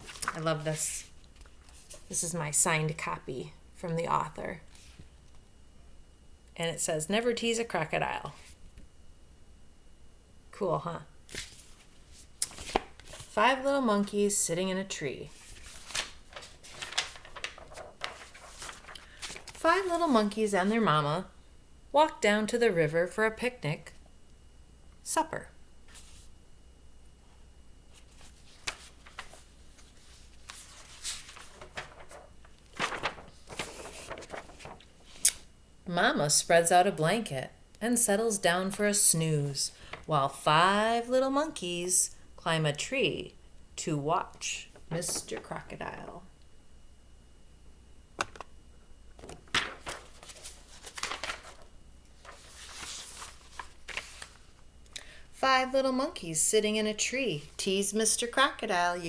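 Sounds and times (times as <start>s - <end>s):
paper page rustling: 0.0s - 2.1s, 11.3s - 13.4s, 15.3s - 20.2s, 25.9s - 26.3s, 27.9s - 35.4s, 49.2s - 54.6s.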